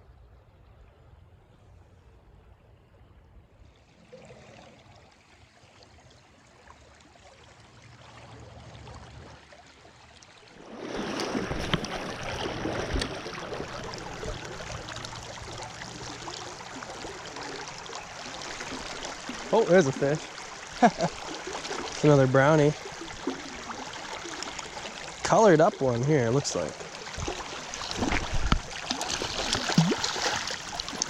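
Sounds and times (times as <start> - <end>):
river water flowing: 3.6 - 31.0
sharp splashes: 10.5 - 25.2, 26.6 - 31.0.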